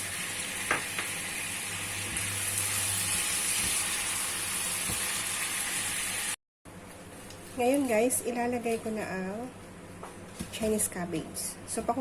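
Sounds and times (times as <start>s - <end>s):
liquid sizzling in a hot pan: 0.0s - 6.4s.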